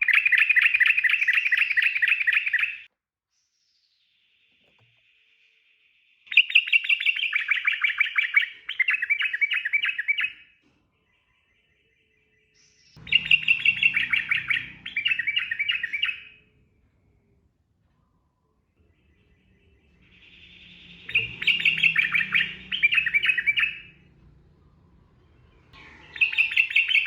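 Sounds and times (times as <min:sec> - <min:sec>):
bulbul chattering song: 0:00.0 - 0:02.9, 0:06.3 - 0:10.4, 0:11.0 - 0:17.4, 0:18.7 - 0:27.0.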